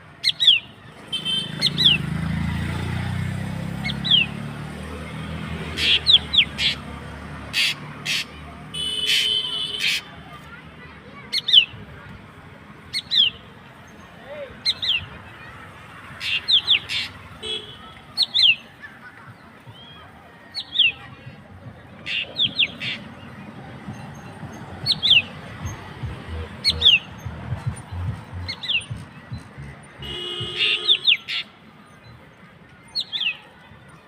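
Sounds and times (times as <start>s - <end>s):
harsh buzzy bird call: 5.7s - 6.9s, 30.0s - 31.6s.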